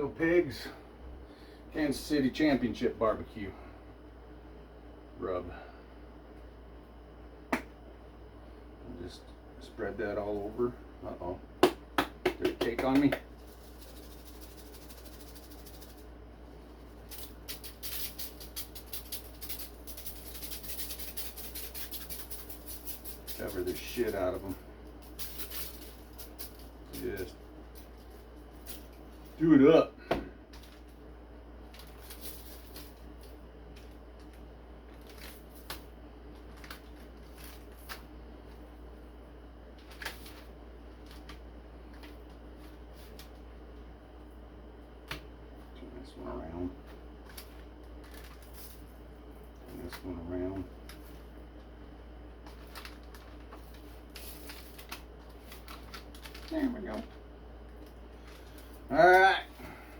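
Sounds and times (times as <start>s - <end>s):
steady low hum: 0.0s - 59.9s
hands rubbing spice on meat: 12.6s - 16.0s
spice shaker rattling: 12.9s - 29.4s, 31.7s - 38.1s.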